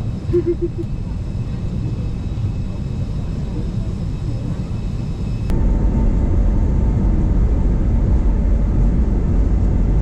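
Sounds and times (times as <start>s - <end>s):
airliner engine rumble in cabin: 0.0s - 10.0s.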